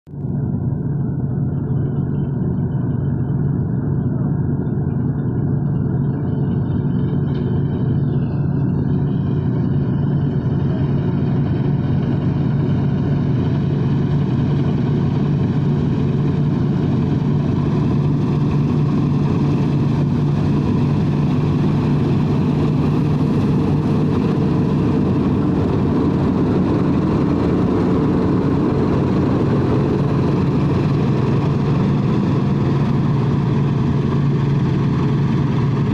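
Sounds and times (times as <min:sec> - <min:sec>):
harvester engine humming: 0:00.1 - 0:35.9.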